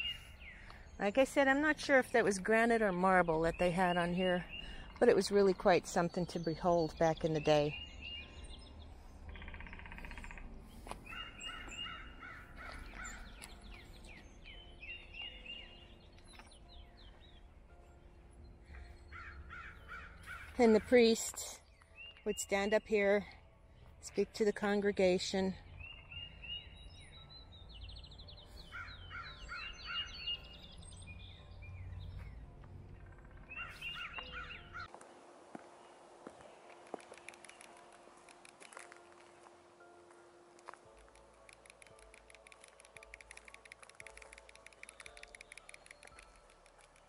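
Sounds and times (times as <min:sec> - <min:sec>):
wild birds calling: 0:03.6 - 0:15.9, 0:18.7 - 0:22.5, 0:28.4 - 0:31.4, 0:32.0 - 0:34.9
repeated bird notes: 0:24.0 - 0:34.9.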